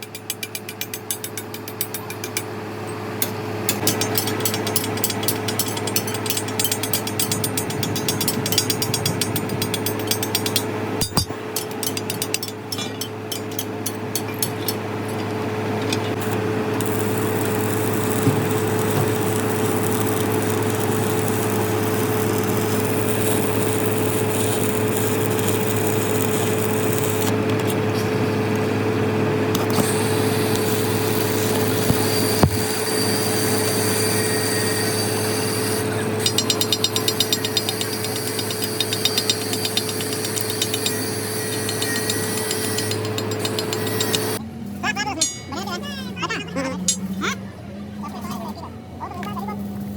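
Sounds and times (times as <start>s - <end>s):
motor humming: 3.8s - 34.6s.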